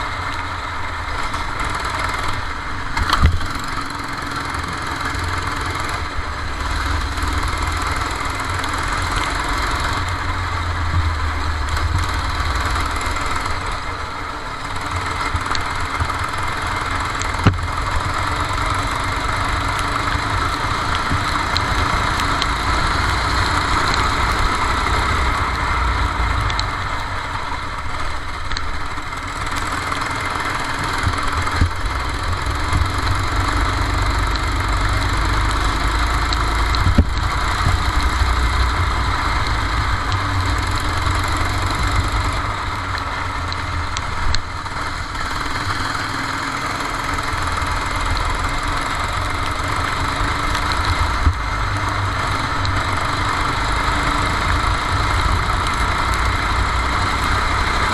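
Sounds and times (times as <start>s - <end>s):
go-kart engine running: 0.0s - 57.9s
sharp tick: 26.4s - 26.8s, 28.5s - 32.0s, 52.4s - 53.3s.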